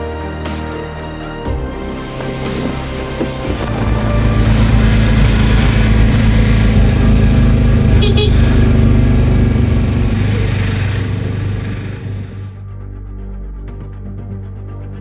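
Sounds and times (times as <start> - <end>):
auto-rickshaw engine running: 1.8 - 12.6
road and wind noise: 2.0 - 12.5.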